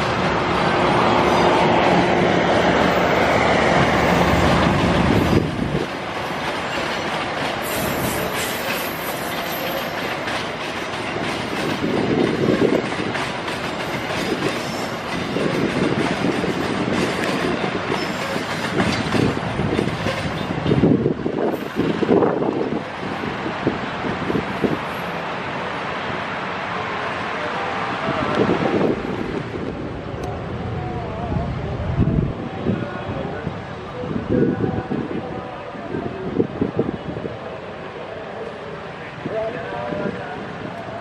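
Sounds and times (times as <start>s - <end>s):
wind buffeting microphone: 0.0s - 6.5s, 11.1s - 24.9s, 27.9s - 37.5s
train coaches rolling past: 0.0s - 41.0s.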